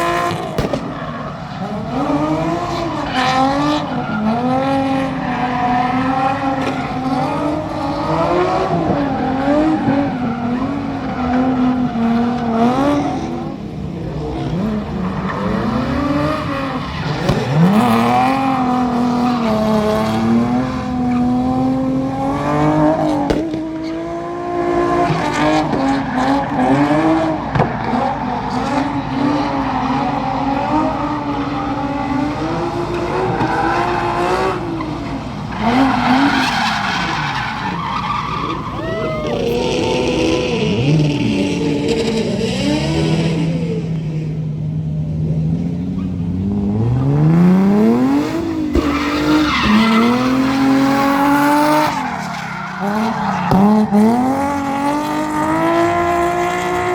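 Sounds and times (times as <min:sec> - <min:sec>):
car engine at high revs: 0:00.0 - 0:56.9
tyres squealing: 0:33.0 - 0:41.0, 0:47.8 - 0:54.8.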